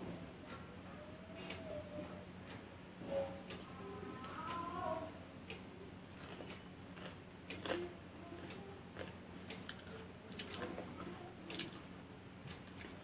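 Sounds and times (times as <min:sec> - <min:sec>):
low electrical hum: 0:00.0 - 0:13.0
person eating popcorn: 0:06.1 - 0:11.9.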